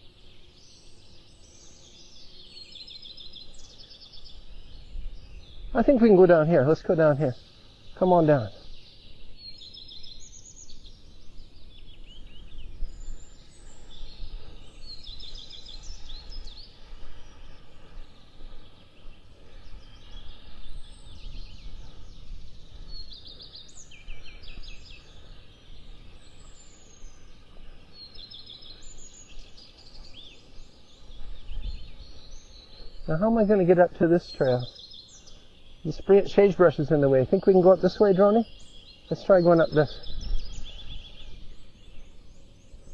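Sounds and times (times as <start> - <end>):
small songbirds trilling: 0.0 - 42.9
steady low rumble: 11.2 - 28.1.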